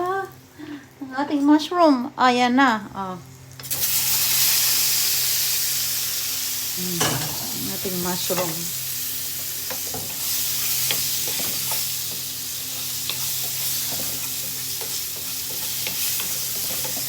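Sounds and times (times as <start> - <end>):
mushrooms sizzling in a pan: 3.2 - 17.0
utensil stirring in a pan: 9.2 - 17.0.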